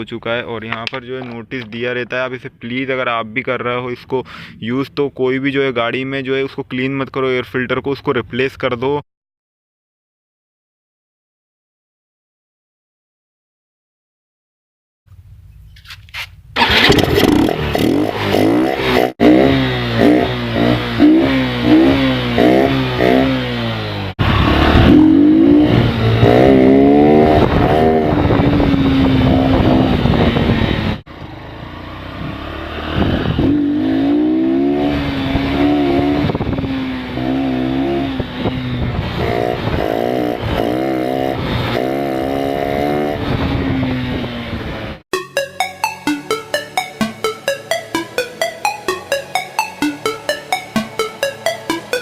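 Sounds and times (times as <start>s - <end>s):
motorcycle engine revving: 16.6s - 43.7s.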